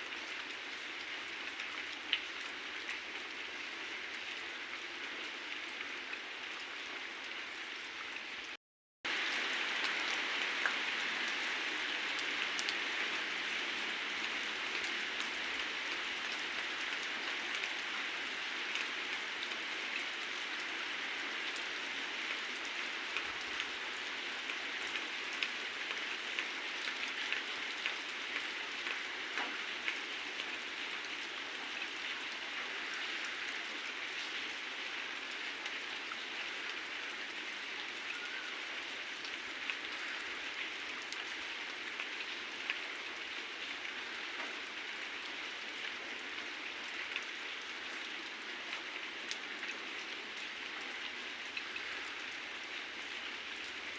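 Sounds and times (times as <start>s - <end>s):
raindrops ticking on surfaces: 0.0s - 53.9s
heavy rain falling: 9.1s - 31.0s.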